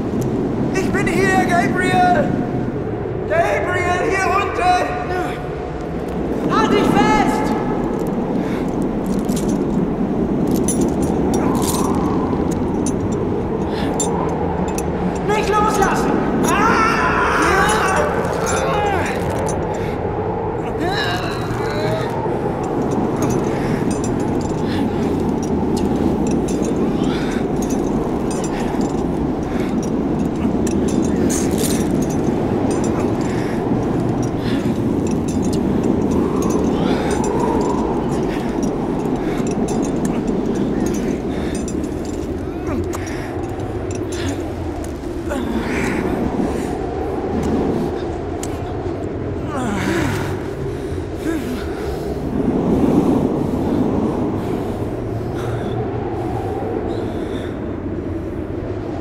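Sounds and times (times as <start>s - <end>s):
blizzard wind blowing: 0.0s - 59.0s
higher crackles and hisses: 3.5s - 55.3s
light metallic clinks: 7.3s - 20.0s, 20.6s - 50.1s.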